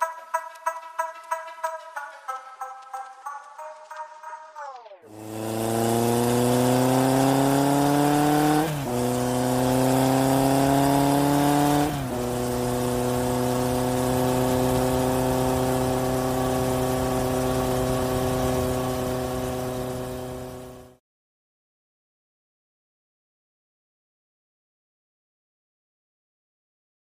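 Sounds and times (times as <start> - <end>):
toy car electric motor whining: 4.7 - 21.0.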